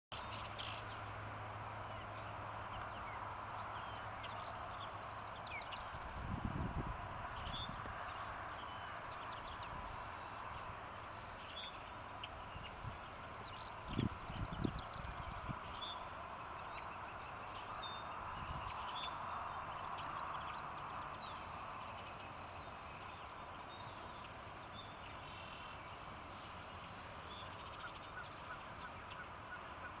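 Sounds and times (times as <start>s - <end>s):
songbirds chirping: 0.1s - 30.0s
low hum and hiss: 0.2s - 30.0s
background hiss: 21.0s - 29.8s.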